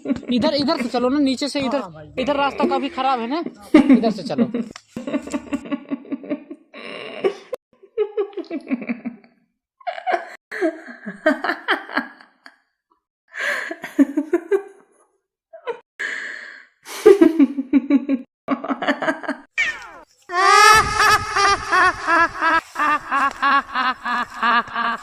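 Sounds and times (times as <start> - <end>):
person laughing with gasps: 20.3 - 25.0.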